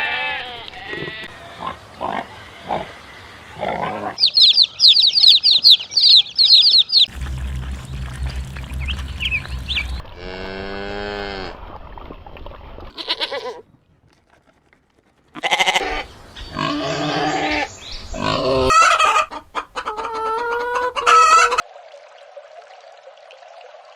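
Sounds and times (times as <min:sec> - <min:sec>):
farm animals calling: 0:00.0 - 0:11.1, 0:15.4 - 0:21.6.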